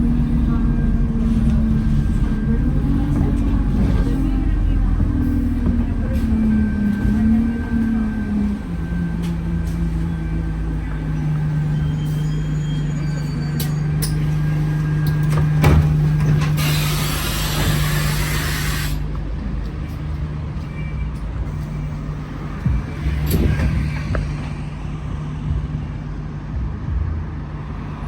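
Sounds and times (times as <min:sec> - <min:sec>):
bus diesel engine humming: 0:00.0 - 0:28.0
compressed-air hiss: 0:16.6 - 0:19.1.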